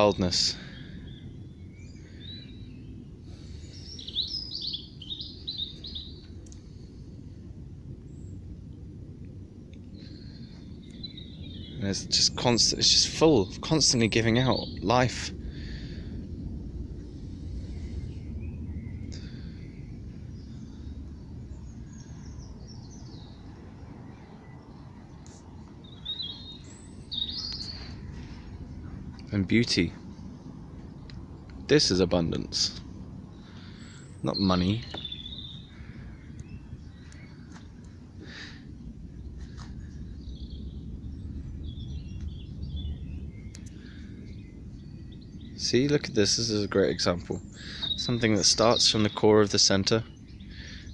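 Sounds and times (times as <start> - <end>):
low outdoor rumble: 0.0 - 50.9
songbird chirping: 0.0 - 50.9.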